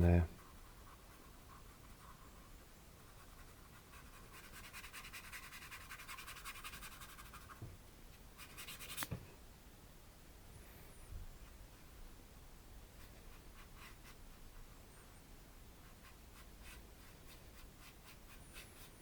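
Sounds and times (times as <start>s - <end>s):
paintbrush scratching on canvas: 0.0s - 7.6s, 8.4s - 9.1s, 13.0s - 15.1s, 15.8s - 19.0s.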